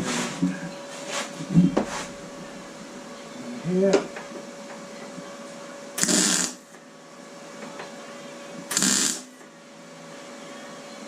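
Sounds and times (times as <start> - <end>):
faint steady hum: 1.4 - 11.0
welding arc crackle and buzz: 6.0 - 6.7, 8.7 - 9.4.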